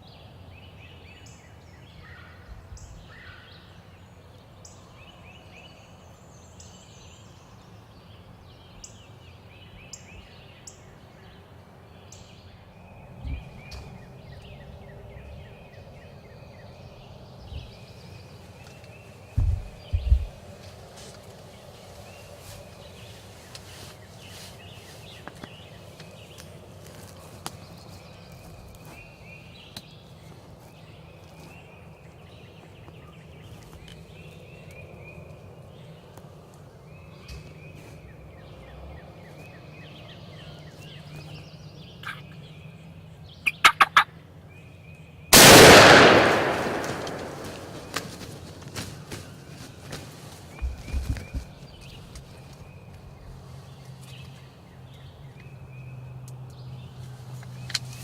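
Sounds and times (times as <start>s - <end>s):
wild turkey gobbling: 43.5s - 44.1s
loud gunshot: 45.4s - 48.2s.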